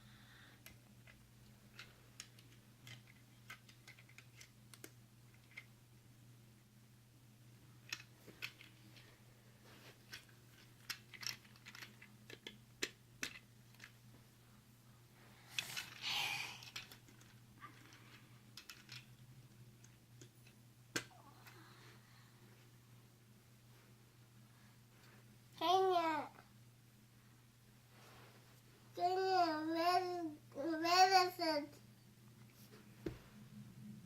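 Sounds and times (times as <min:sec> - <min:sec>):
faint steady hum: 0:00.0 - 0:34.0
toy pieces clicking: 0:00.6 - 0:05.7, 0:07.9 - 0:08.7, 0:10.1 - 0:13.9, 0:15.6 - 0:17.9, 0:18.6 - 0:19.2
rustling clatter of toy pieces: 0:01.0 - 0:04.5, 0:07.8 - 0:09.1, 0:09.8 - 0:14.0, 0:15.4 - 0:19.2.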